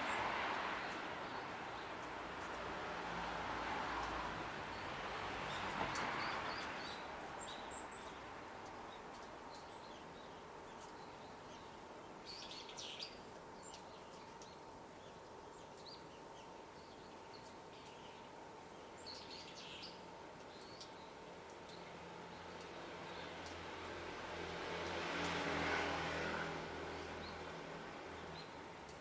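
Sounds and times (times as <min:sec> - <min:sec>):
small birds chirping: 0:04.6 - 0:23.9, 0:26.9 - 0:29.0.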